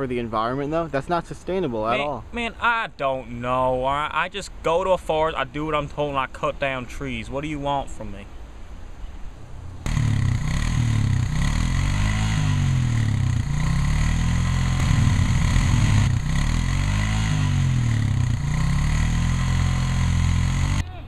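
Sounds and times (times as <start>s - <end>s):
small engine revving: 9.8s - 20.8s.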